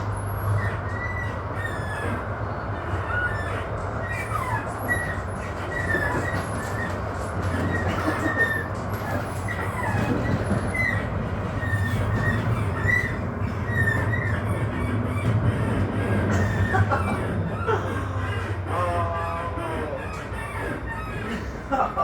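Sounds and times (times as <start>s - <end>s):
tram hum and rumble: 0.0s - 22.0s
wheel squeals on rails: 0.0s - 22.0s.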